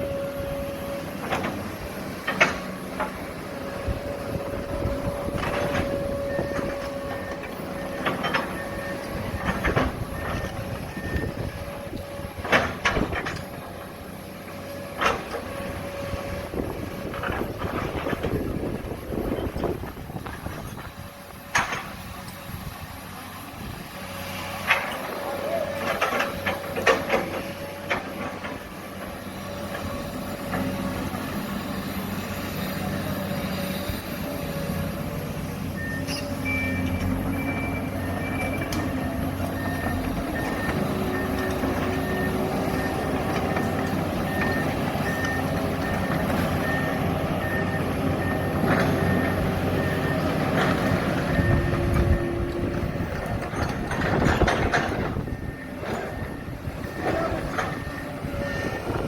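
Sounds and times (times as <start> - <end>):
diesel engines running: 0.0 - 59.0
reversing alarm beeping: 3.8 - 13.2, 35.7 - 59.0.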